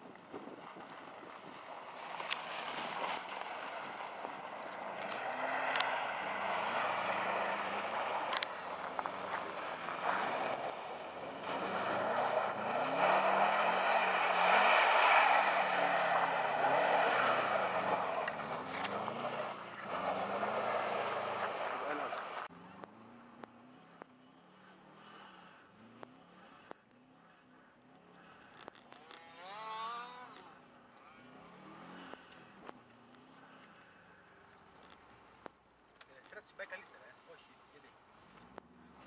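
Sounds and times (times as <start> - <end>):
car engine revving: 0.0 - 35.1.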